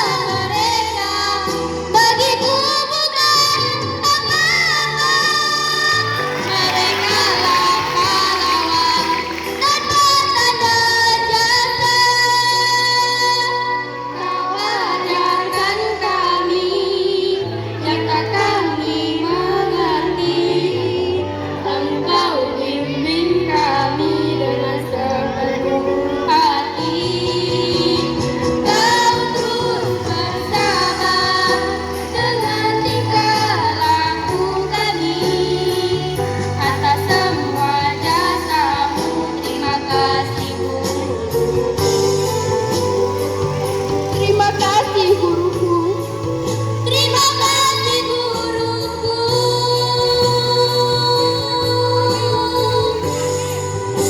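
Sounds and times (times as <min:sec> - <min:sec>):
backing music with bass line: 0:00.0 - 0:54.0
girls' choir singing: 0:04.9 - 0:10.8, 0:14.2 - 0:48.4.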